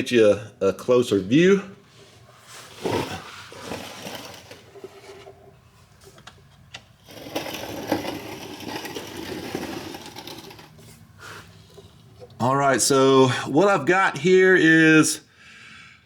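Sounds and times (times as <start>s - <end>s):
person sliding under car scraping: 2.4s - 5.3s, 7.0s - 11.6s.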